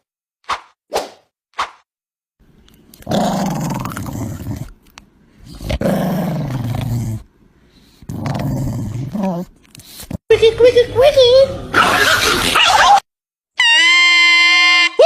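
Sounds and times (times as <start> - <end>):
animal growling: 3.0 - 4.8, 5.4 - 7.3, 8.0 - 9.6.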